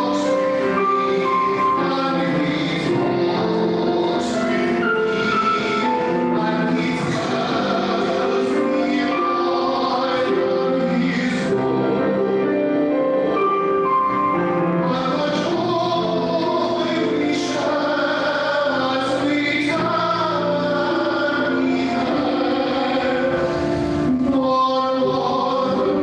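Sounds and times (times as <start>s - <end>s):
choir singing long held notes: 0.0s - 13.8s.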